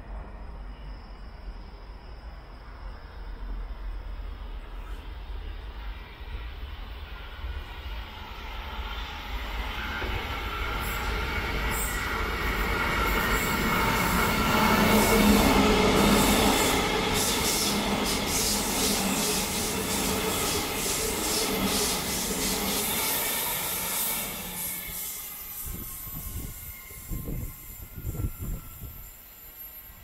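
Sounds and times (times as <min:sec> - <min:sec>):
electric train passing: 0:00.0 - 0:30.0
train whine: 0:00.0 - 0:30.0.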